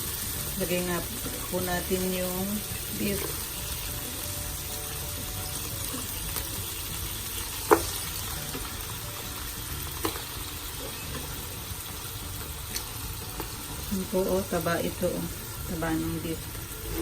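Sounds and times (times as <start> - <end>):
meat sizzling in a pot: 0.0 - 17.0.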